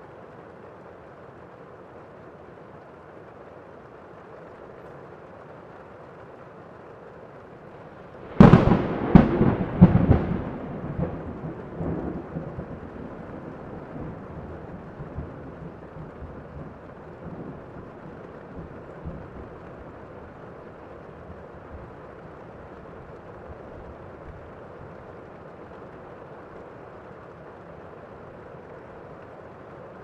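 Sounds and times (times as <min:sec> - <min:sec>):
steady rain: 0:00.0 - 0:30.0
thunder cracks and rumble: 0:08.2 - 0:20.0.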